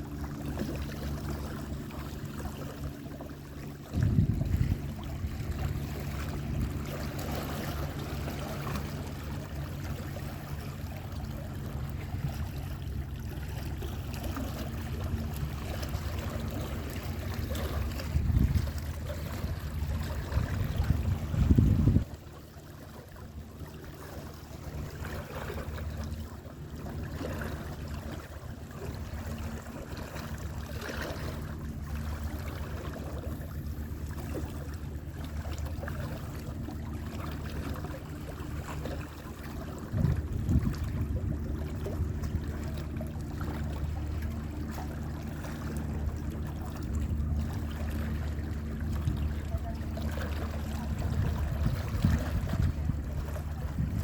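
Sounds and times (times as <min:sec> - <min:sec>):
low rumble: 0:00.0 - 0:22.3, 0:45.4 - 0:54.0
sea water sloshing: 0:00.0 - 0:54.0.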